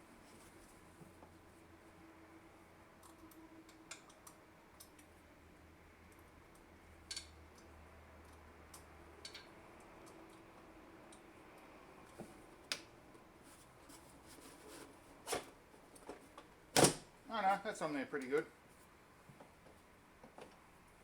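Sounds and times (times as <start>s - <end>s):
light clicks and taps of tools: 2.9s - 5.3s, 6.0s - 13.3s, 18.2s - 20.6s.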